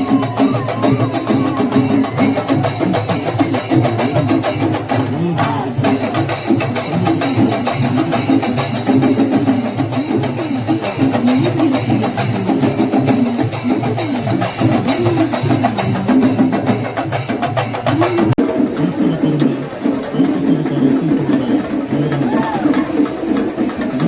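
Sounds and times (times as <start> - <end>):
wavering melody line: 0.0 - 4.2
drum ensemble playing fast: 0.0 - 24.0.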